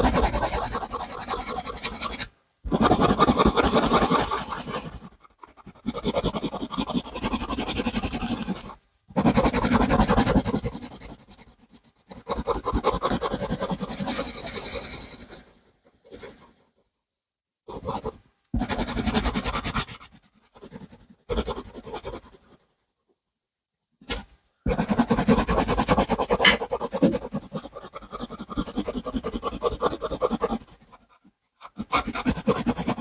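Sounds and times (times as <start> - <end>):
drawing tool scratching on paper: 0.0 - 14.5, 24.0 - 33.0.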